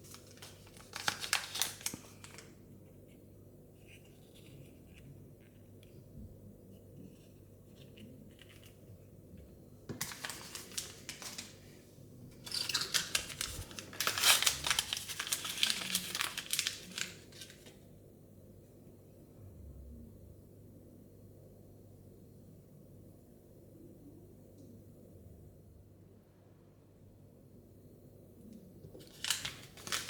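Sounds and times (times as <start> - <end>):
plastic wrapping crinkling and tearing: 0.0 - 2.6, 10.0 - 11.6, 12.4 - 17.8, 29.0 - 30.0.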